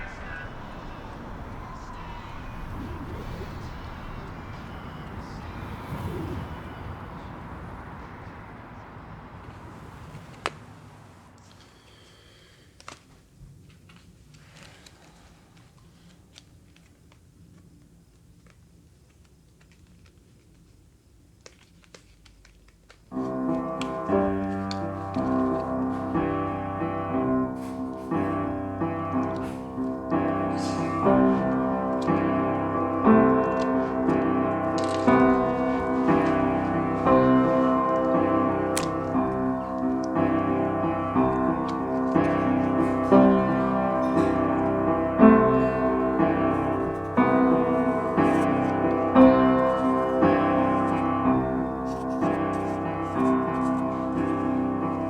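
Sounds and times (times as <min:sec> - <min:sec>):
piano piece with chords: 0:00.0 - 0:11.4, 0:23.1 - 0:55.0.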